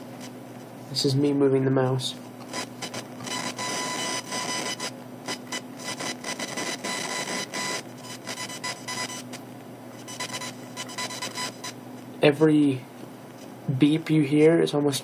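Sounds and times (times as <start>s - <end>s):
steady electrical whine: 0.0s - 15.0s
buzzing crackling interference: 2.2s - 11.8s
short beeps: 10.1s - 11.8s.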